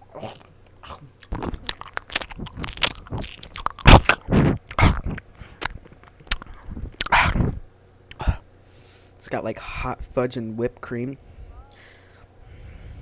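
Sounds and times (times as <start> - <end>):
wet smacking and chewing: 0.2 - 7.5.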